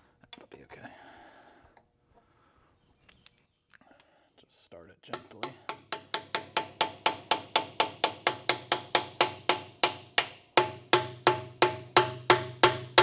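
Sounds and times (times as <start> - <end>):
hammer taps with metallic ring: 5.2 - 13.0.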